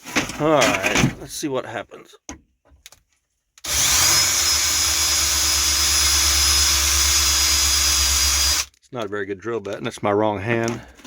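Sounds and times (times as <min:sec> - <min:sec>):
power drill whining on sheet metal: 0:03.6 - 0:08.8.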